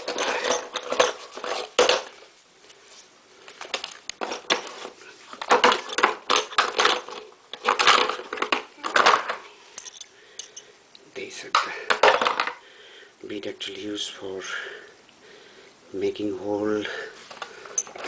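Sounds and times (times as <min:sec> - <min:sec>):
drill bits clinking together: 0:09.8 - 0:10.6.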